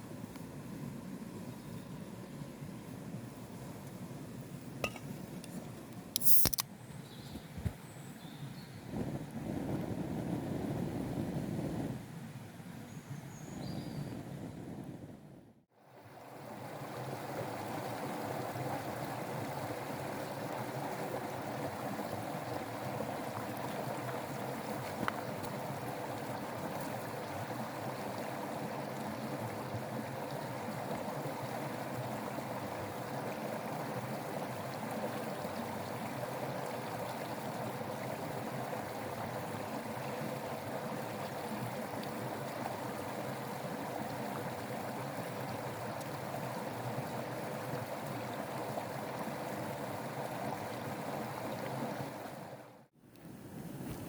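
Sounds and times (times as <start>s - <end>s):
running water rushing: 15.8s - 52.9s.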